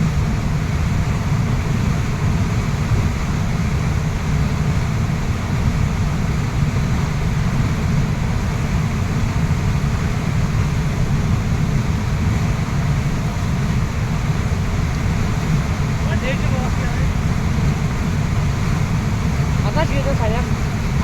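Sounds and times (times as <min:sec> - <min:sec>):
waterfall rushing: 0:08.2 - 0:21.0.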